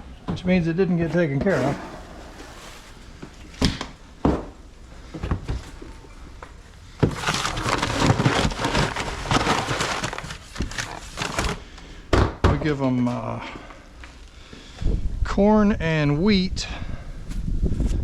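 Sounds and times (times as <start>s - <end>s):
grain pouring out: 1.5s - 4.1s.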